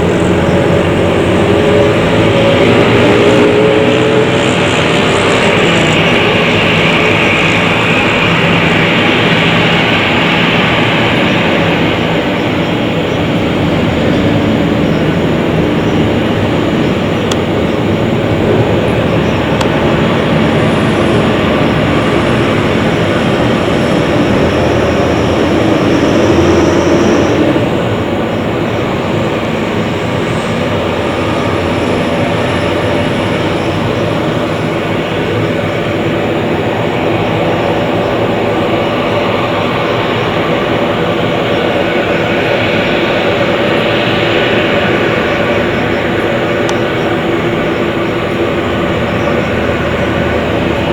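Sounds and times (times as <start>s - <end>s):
jet engines rushing and whining: 0.0s - 50.9s.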